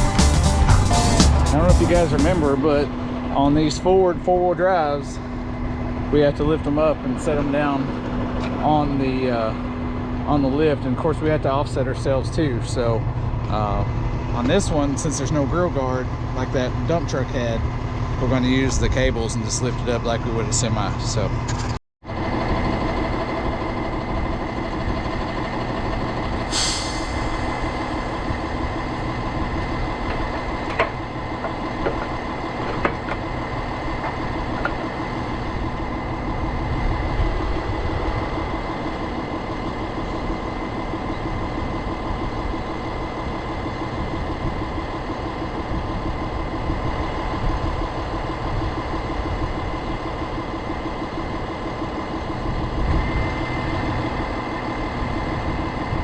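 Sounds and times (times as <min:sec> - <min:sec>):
truck engine idling: 0:00.0 - 0:56.0
air hiss: 0:26.5 - 0:28.2.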